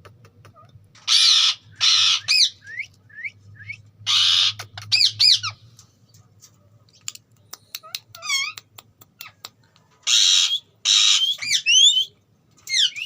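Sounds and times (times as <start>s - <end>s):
parakeet squawking: 1.0s - 2.7s, 4.1s - 5.6s, 7.9s - 8.6s, 10.0s - 12.1s, 12.7s - 13.0s.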